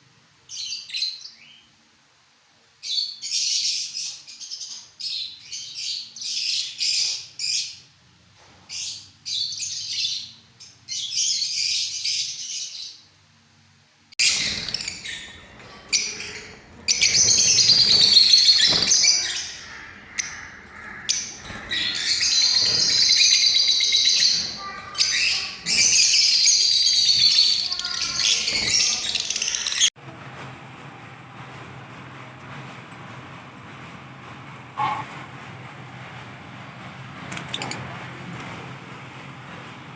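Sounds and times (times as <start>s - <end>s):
parrots chirping and chattering: 14.2s - 30.0s.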